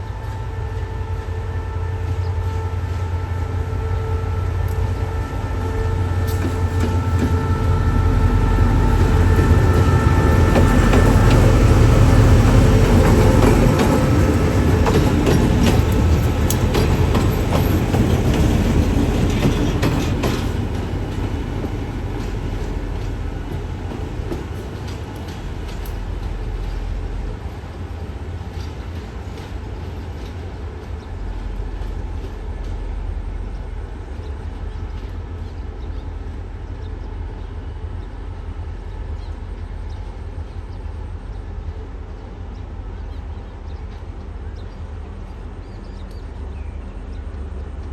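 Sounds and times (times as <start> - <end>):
train wheels clacking on rails: 4.6 - 36.4.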